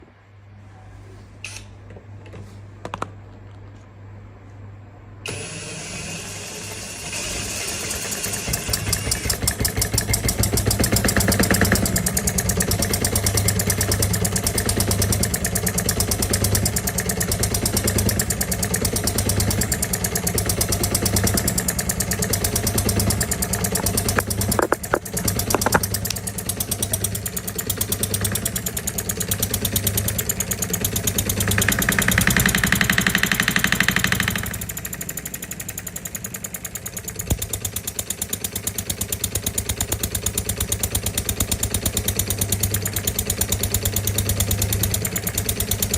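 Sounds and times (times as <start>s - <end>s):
small model diesel engine running: 5.3s - 45.9s
clicks: 23.5s - 26.2s.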